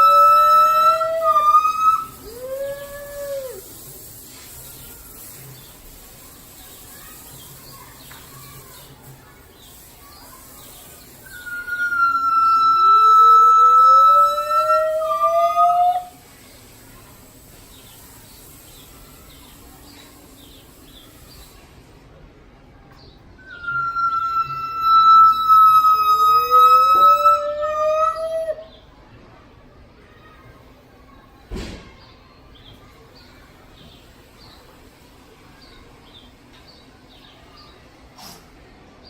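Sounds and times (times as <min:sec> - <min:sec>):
gibbon call rising in pitch: 0:00.0 - 0:03.6, 0:11.3 - 0:16.1, 0:23.4 - 0:28.6
gibbon long high hoot: 0:11.3 - 0:16.1, 0:23.5 - 0:28.6.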